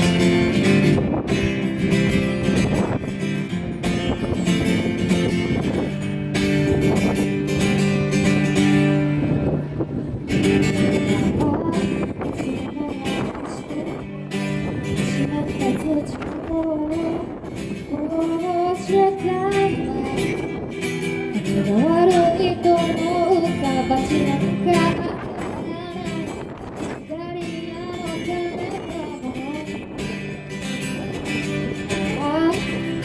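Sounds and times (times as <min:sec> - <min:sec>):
acoustic guitar strumming: 0:00.0 - 0:33.0
woman singing: 0:10.5 - 0:30.3, 0:31.8 - 0:33.0.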